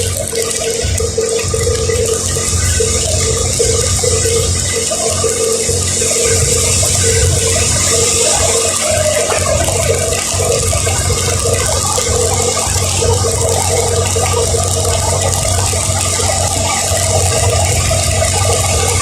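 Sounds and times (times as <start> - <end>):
tyres hissing on wet road: 0.0 - 19.0
vehicle running hum: 0.0 - 19.0.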